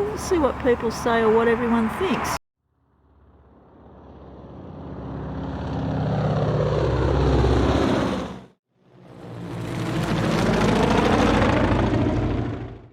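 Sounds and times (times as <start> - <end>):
pulsing engine-like drone: 2.9 - 12.9.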